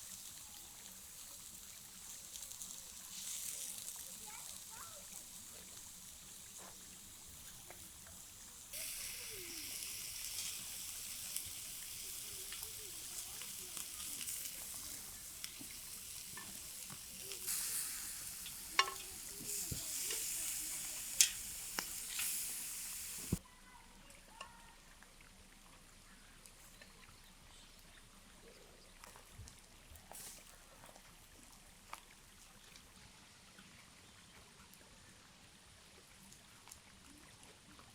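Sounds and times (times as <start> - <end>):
food sizzling: 0.0 - 23.4
pops and crackles: 8.8 - 23.4.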